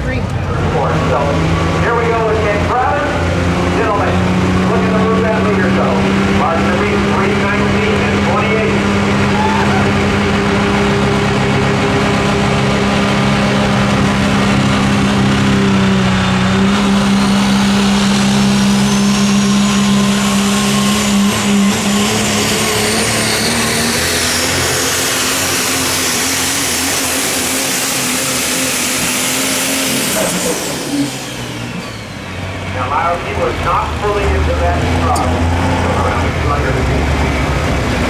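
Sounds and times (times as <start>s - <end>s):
diesel truck engine under load: 0.0s - 38.0s
turbocharger whistle: 3.8s - 32.4s.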